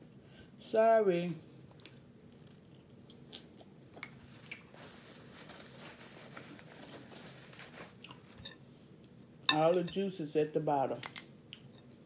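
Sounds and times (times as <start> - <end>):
wet handling and chewing: 1.6 - 5.0, 7.9 - 8.4.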